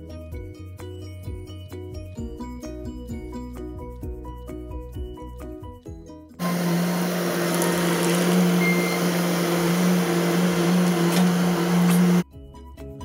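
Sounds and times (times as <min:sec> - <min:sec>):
diesel engine droning with whine: 0:06.4 - 0:12.2
background music: 0:12.2 - 0:13.0.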